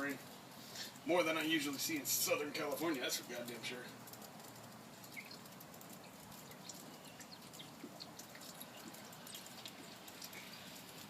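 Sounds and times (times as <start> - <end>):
light rain: 0.0 - 11.0
water drips and ticks: 0.0 - 11.0.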